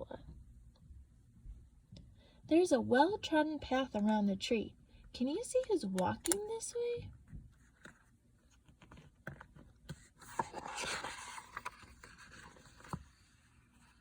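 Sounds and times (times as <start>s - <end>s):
paper book scraping: 7.6s - 14.0s.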